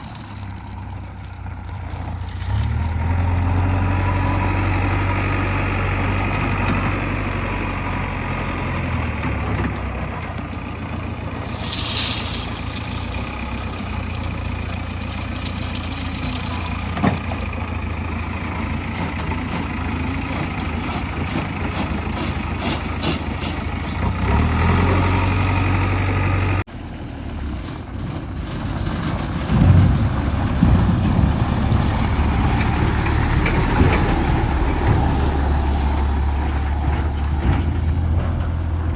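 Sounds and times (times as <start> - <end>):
diesel engines running: 0.0 - 38.9
short hiss: 11.4 - 13.1.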